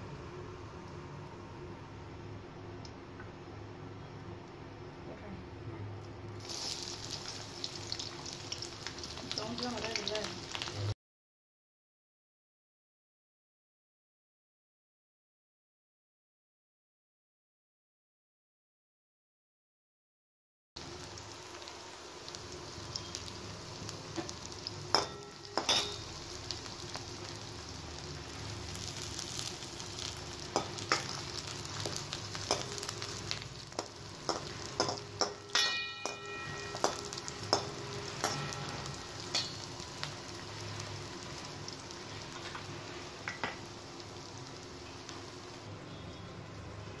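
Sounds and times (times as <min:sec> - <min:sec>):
shallots and spices sizzling in oil: 0:06.0 - 0:11.0, 0:20.8 - 0:47.0
steel spoon clinking and scraping pan: 0:24.9 - 0:26.1, 0:33.8 - 0:39.8.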